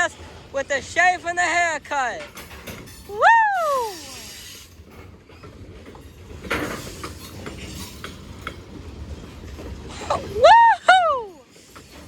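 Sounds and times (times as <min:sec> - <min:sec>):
freight train rumbling: 0:00.0 - 0:12.0
metallic clanking and rattling: 0:00.2 - 0:03.2, 0:04.8 - 0:10.0.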